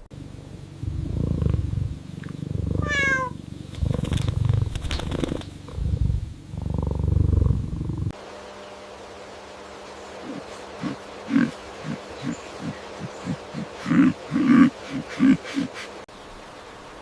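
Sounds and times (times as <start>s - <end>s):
cat purring: 0.2s - 8.2s.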